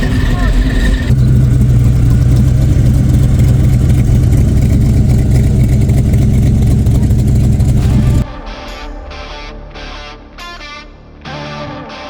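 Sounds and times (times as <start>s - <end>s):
car engine running: 0.0s - 8.2s.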